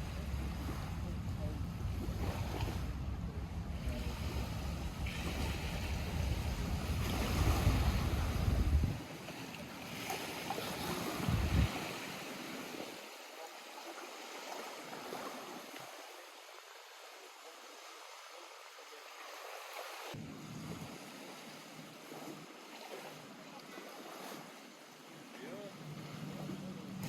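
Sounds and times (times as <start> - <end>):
wind buffeting microphone: 0.0 - 9.0, 10.9 - 12.0
lake waves lapping shore: 0.0 - 27.0.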